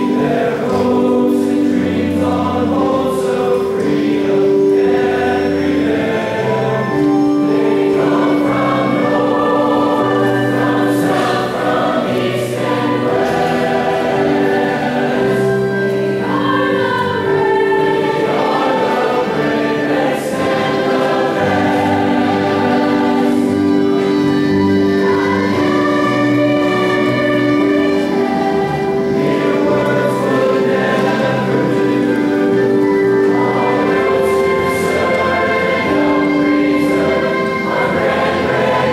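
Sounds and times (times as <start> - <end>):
choir singing long held notes: 0.0 - 38.9
instrumental accompaniment: 0.0 - 38.9.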